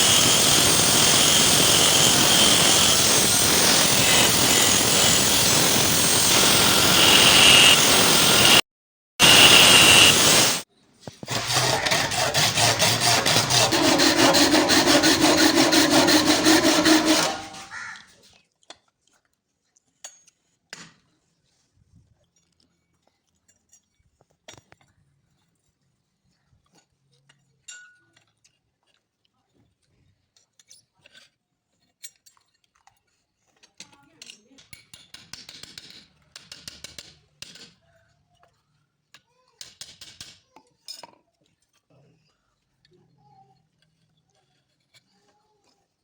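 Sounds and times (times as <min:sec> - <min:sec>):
grinding noise with high whine: 0:00.0 - 0:08.6, 0:09.2 - 0:10.6, 0:11.3 - 0:17.7
rhythmic rasping strokes on metal: 0:00.0 - 0:08.6, 0:09.2 - 0:10.6, 0:11.2 - 0:17.8.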